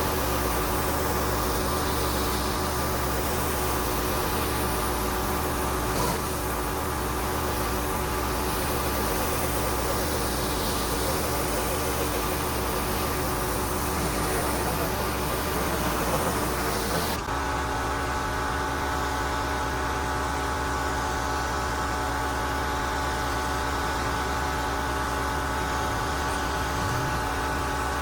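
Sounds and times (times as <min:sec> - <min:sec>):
pressure washer spray hissing: 0:00.0 - 0:17.3
pressure washer machine hum: 0:00.0 - 0:28.0.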